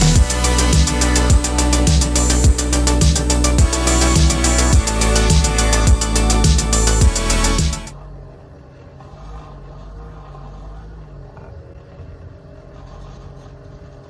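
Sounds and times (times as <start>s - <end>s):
music: 0.0s - 7.9s.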